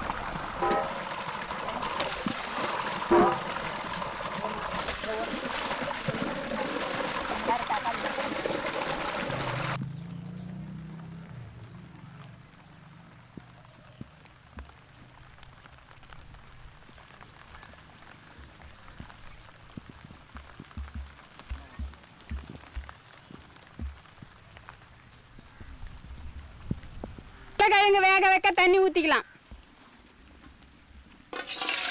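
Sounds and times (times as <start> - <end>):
splashing rushing water: 0.0 - 27.6, 31.3 - 31.9
soft low thumps: 13.3 - 27.6
bird chirps: 21.4 - 27.6.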